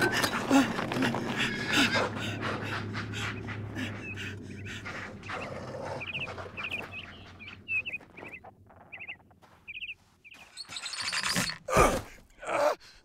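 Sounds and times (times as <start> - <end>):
man breathing heavily: 0.0 - 5.6
scuffling in dry dirt: 0.0 - 12.2
small bird chirping: 3.9 - 11.4.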